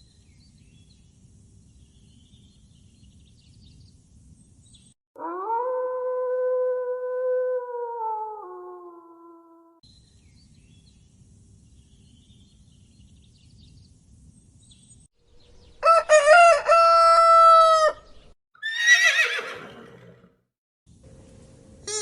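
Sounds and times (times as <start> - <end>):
rooster crowing: 15.8 - 18.1.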